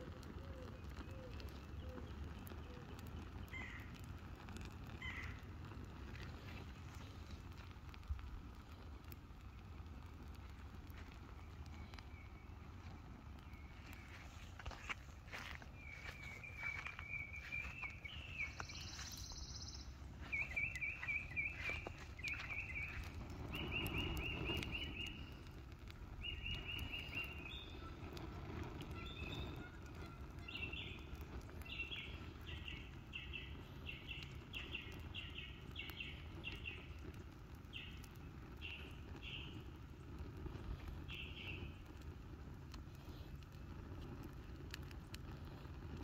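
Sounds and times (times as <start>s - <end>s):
songbird chirping: 11.8s - 25.4s.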